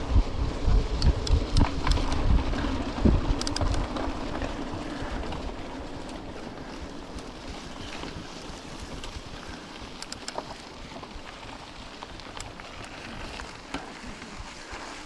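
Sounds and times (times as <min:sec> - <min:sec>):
wind buffeting microphone: 0:00.0 - 0:13.5
light rattling clicks: 0:03.4 - 0:03.9, 0:09.9 - 0:10.6.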